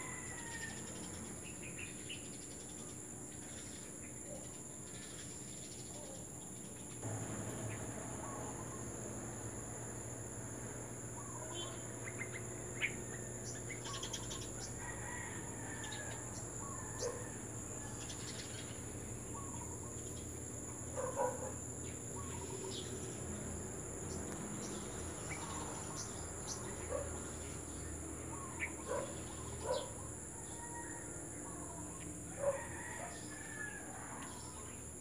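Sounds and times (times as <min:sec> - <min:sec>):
birds chirping and calling: 0:11.0 - 0:17.3, 0:17.9 - 0:20.3.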